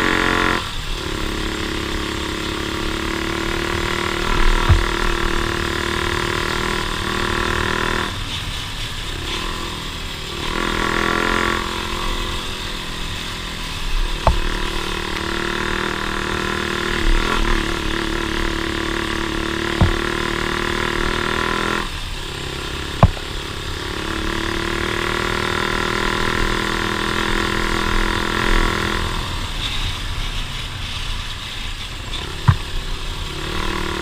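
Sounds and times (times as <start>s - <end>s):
off-road vehicle engine revving: 0.0s - 34.0s
sharp knocks: 4.4s - 5.4s, 14.2s - 14.9s, 19.6s - 20.7s, 23.0s - 23.7s.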